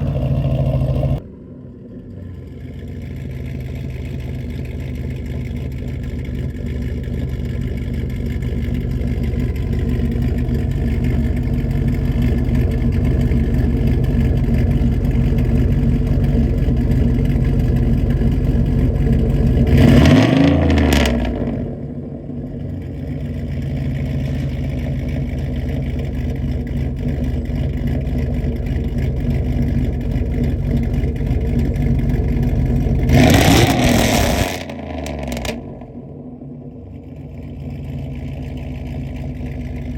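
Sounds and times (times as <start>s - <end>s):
vee-eight engine through straight pipe: 0.0s - 39.9s.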